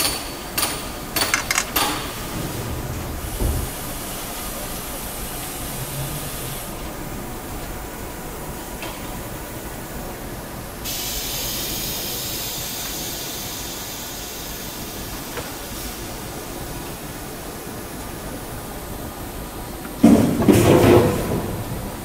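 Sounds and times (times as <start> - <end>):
loud hiss: 10.8 - 16.5.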